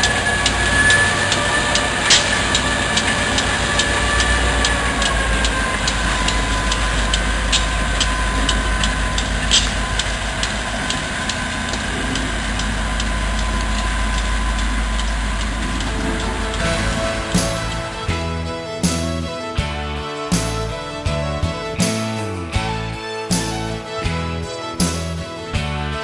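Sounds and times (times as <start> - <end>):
wheels clicking: 0.0 - 18.2
train rumbling: 0.0 - 19.2.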